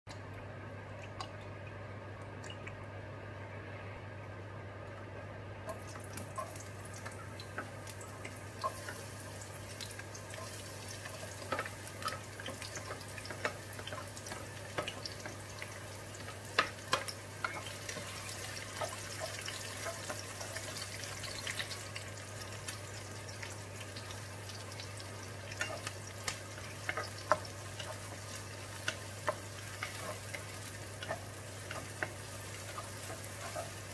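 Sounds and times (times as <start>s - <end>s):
onion sizzling in hot oil: 5.7s - 33.9s
wooden spatula scraping and tapping: 25.5s - 33.9s.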